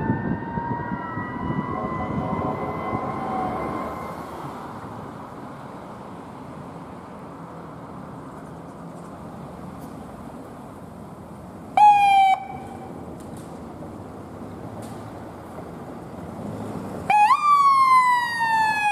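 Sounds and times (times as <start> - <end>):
traffic and engine noise: 0.0 - 18.9.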